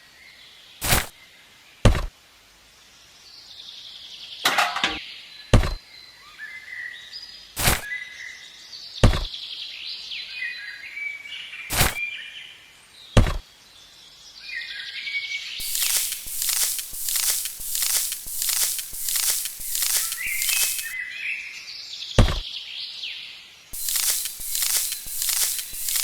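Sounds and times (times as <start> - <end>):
sharp knocks: 5.6 - 5.8, 9.0 - 9.3, 13.2 - 13.4, 22.2 - 22.4
small birds chirping: 13.0 - 26.0.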